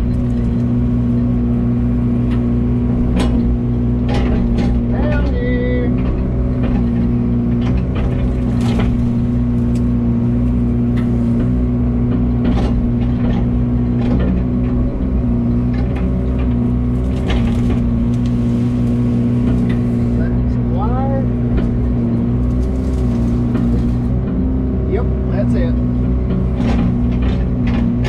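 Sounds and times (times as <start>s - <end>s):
excavator engine under load: 0.0s - 28.0s
cracks and knocks from brush: 6.0s - 14.5s, 15.7s - 20.2s, 21.5s - 24.3s.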